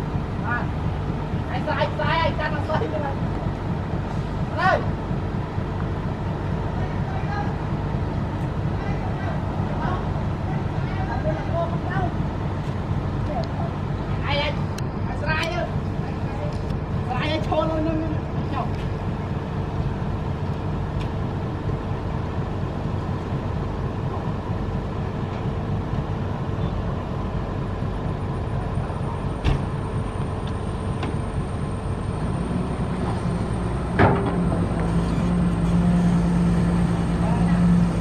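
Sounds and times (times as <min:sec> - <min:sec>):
heavy machine engine rumbling: 0:00.0 - 0:38.0.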